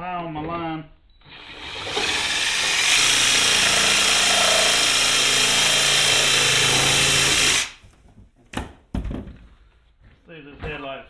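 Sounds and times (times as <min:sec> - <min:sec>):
power tool cutting: 0:01.3 - 0:07.8.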